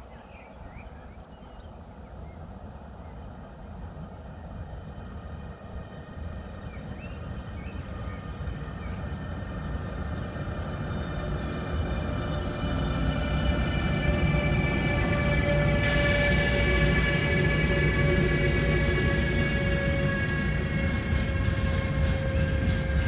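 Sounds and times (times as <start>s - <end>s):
low rumble of wheels on rail: 0.0s - 23.0s
locomotive whine: 5.2s - 23.0s.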